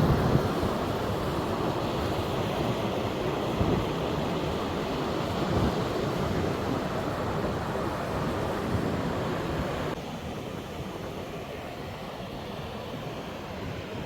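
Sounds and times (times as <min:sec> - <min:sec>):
wind gusting on microphone: 0:00.0 - 0:10.0
surf washing on beach: 0:00.0 - 0:14.0.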